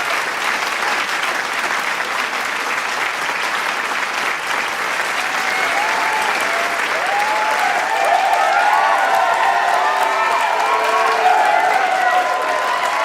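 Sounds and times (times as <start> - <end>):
large crowd applauding: 0.0 - 13.0
voices shouting and cheering: 5.2 - 13.0.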